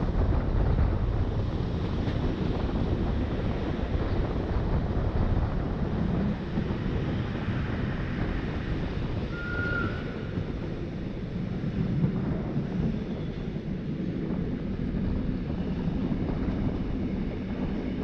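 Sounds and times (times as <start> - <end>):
electric train rumbling: 0.0 - 18.0
wind buffeting microphone: 0.0 - 18.0
high squeal: 9.3 - 10.3.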